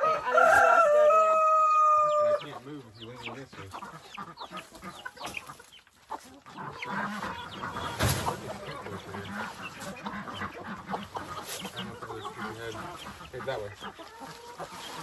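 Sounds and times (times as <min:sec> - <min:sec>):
chickens clucking: 0:00.0 - 0:15.0
rustle or thump: 0:07.9 - 0:08.5.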